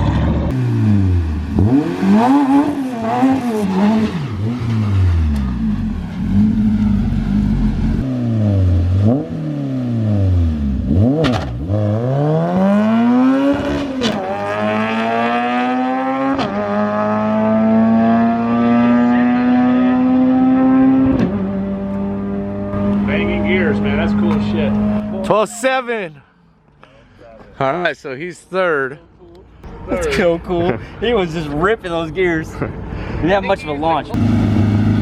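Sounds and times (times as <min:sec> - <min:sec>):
truck engine revving through gears: 0:00.0 - 0:25.3, 0:34.1 - 0:35.0.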